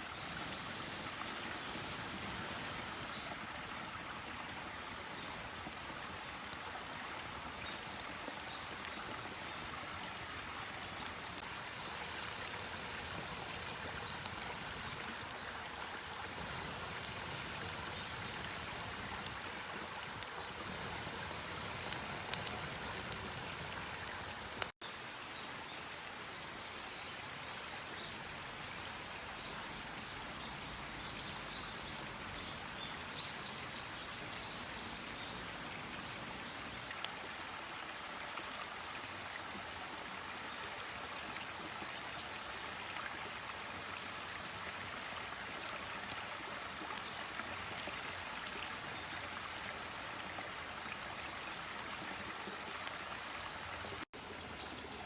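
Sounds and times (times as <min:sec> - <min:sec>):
campfire crackling: 0:00.0 - 0:24.8, 0:44.9 - 0:54.0
fire popping: 0:00.3 - 0:03.4, 0:10.6 - 0:24.8.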